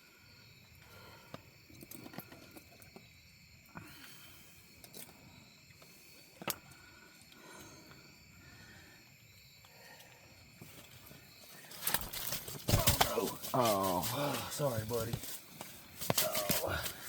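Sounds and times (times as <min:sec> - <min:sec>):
night insects chorus: 0:00.0 - 0:17.0.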